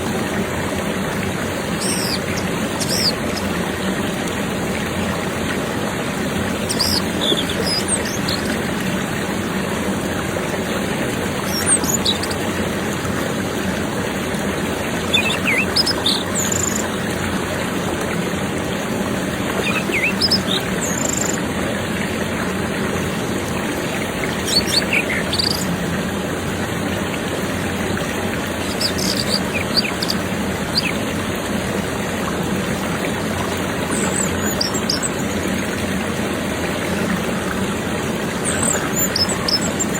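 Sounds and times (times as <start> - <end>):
running water rushing: 0.0 - 39.9
bird chirps and whistles: 1.8 - 3.2, 6.7 - 8.5, 15.1 - 16.8, 19.6 - 21.4, 24.4 - 25.6, 28.7 - 31.0, 34.0 - 35.2.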